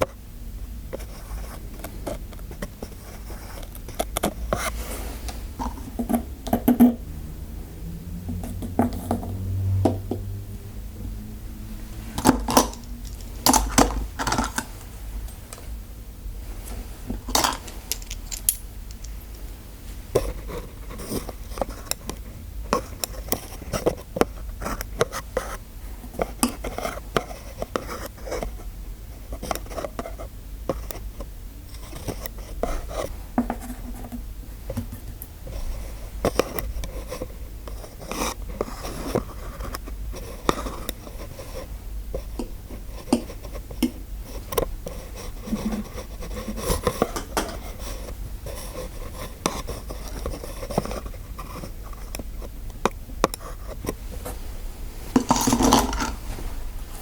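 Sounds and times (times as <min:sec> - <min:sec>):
metal dental instruments clinking: 0:17.2 - 0:19.4.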